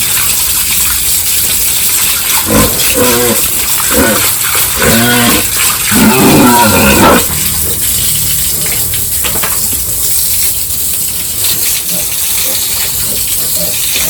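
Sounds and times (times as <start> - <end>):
running water hissing: 0.0 - 14.0
pigs squealing: 2.1 - 9.2, 11.5 - 14.0.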